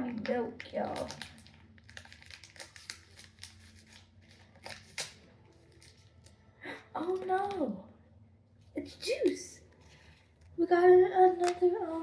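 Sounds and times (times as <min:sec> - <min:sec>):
package crinkling being opened: 0:00.0 - 0:06.4.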